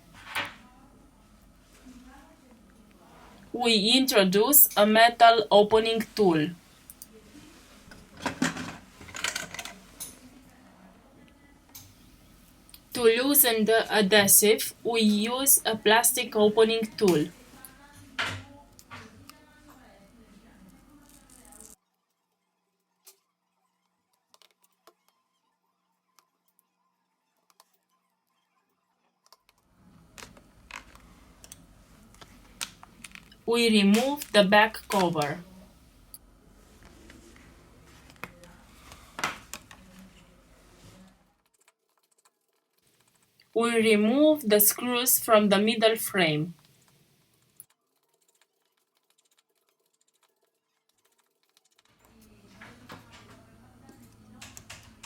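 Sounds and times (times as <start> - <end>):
low steady hum: 0.0 - 21.8, 29.7 - 41.3, 43.4 - 46.8.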